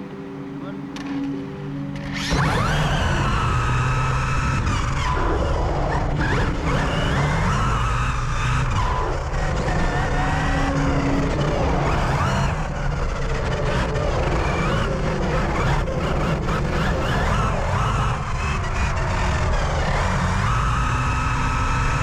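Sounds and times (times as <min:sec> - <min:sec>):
electric motor whine: 0:00.0 - 0:22.0
steady rumble: 0:00.0 - 0:22.0.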